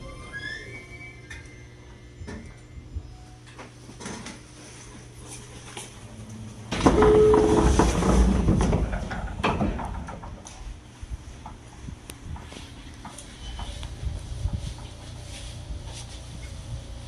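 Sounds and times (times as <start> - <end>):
train doors sliding open: 6.0 - 10.8.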